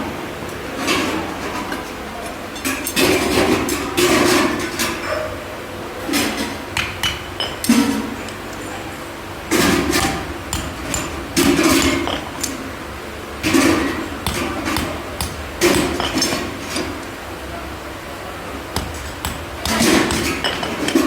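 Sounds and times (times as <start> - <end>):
hammer blows on metal: 18.8 - 21.0.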